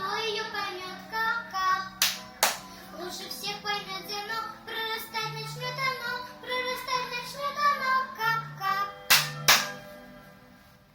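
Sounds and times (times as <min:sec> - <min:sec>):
child singing: 0:00.0 - 0:02.0, 0:02.9 - 0:09.0.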